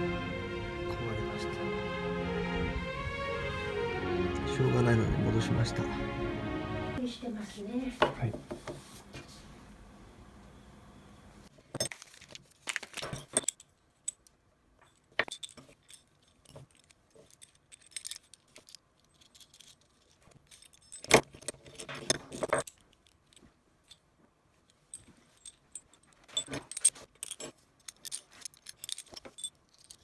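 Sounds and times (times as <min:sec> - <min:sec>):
metal tools clinking: 0:11.8 - 0:24.0, 0:24.7 - 0:30.0.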